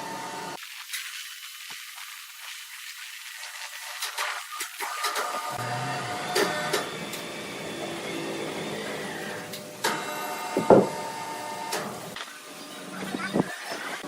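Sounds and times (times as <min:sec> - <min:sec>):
sawmill machinery humming: 0:05.1 - 0:14.0
sharp knocks: 0:10.6 - 0:11.0.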